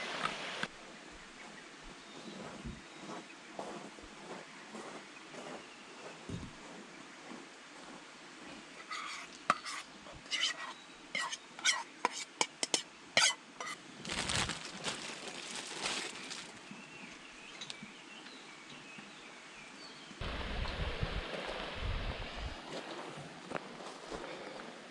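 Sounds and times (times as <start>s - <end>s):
rustling: 13.2s - 17.8s.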